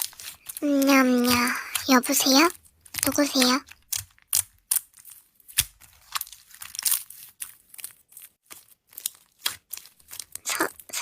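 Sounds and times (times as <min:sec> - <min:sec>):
slime squeezed by hand crackling: 0:00.0 - 0:11.0.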